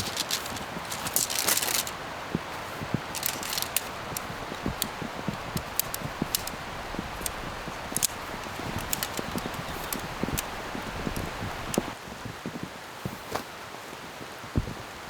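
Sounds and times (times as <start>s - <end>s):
clicks and knocks of tent poles: 0.0s - 12.0s
tent fabric rustling: 0.0s - 13.5s
steady rain falling: 0.0s - 15.0s.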